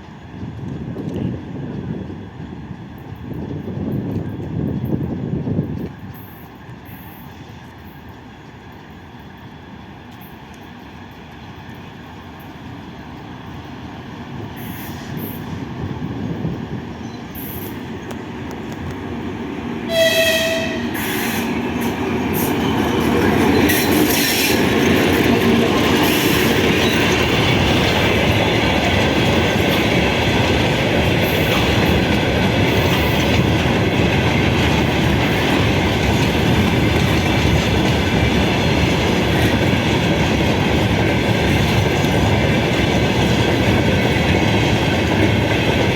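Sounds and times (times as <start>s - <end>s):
train passing: 0.0s - 45.9s
train horn blast: 19.9s - 21.5s.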